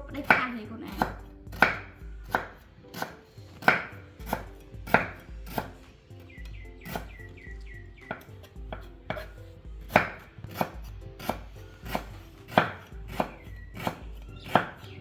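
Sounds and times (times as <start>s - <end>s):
chopping on a cutting board: 0.1s - 15.0s.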